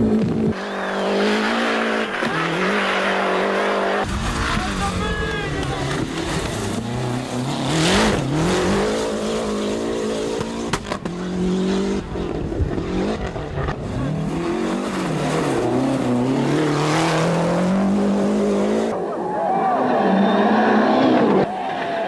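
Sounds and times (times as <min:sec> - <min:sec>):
rally car engine accelerating: 0:00.0 - 0:22.0
sharp crack: 0:04.0 - 0:09.2.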